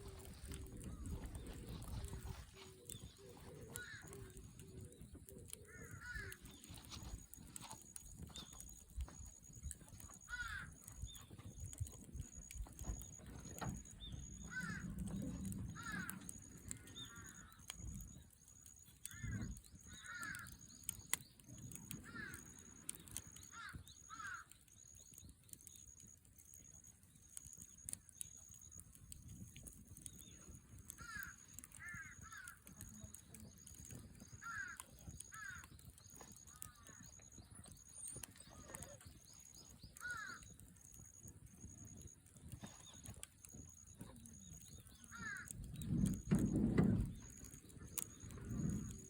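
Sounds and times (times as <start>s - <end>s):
crows cawing: 2.9s - 4.7s, 5.5s - 6.7s, 10.0s - 11.1s, 14.3s - 17.8s, 19.0s - 21.0s, 21.8s - 24.6s, 30.9s - 32.9s, 33.8s - 37.4s, 40.0s - 40.6s, 44.7s - 46.2s.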